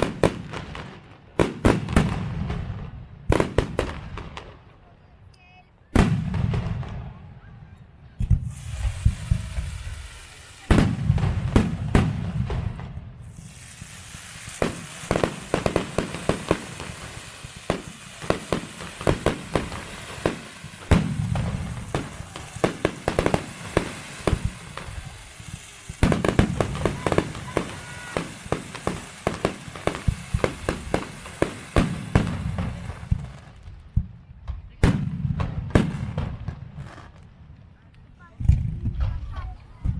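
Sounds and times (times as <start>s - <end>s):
fireworks bangs: 0.0s - 37.6s
fireworks crackling: 0.0s - 39.9s.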